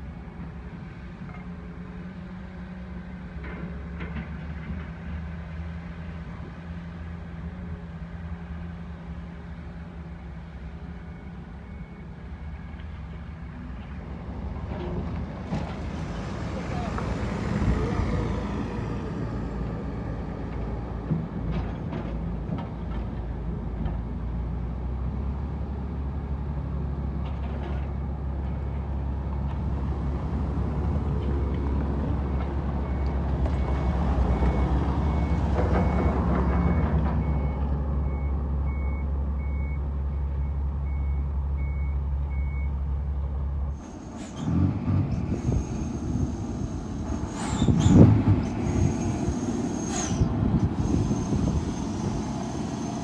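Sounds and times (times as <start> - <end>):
diesel truck engine droning: 5.4 - 22.5, 28.1 - 53.0
air brakes hissing: 43.7 - 53.0.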